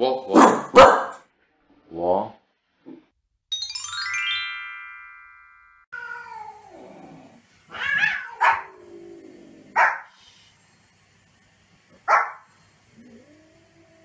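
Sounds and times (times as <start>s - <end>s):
dog barking sharply: 0.3s - 1.2s, 9.8s - 10.1s, 12.1s - 12.4s
bright chime: 3.5s - 5.9s
cat meowing: 5.9s - 6.9s, 7.7s - 8.8s.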